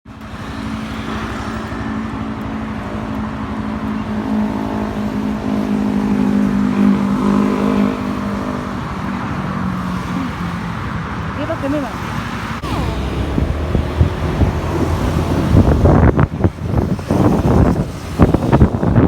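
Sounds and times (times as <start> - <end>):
road and wind noise: 0.0 - 19.0
motorcycle engine running: 12.6 - 19.0.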